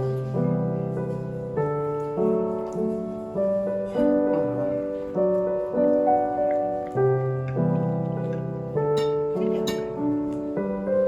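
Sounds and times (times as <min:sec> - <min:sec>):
gentle piano chords: 0:00.0 - 0:11.0.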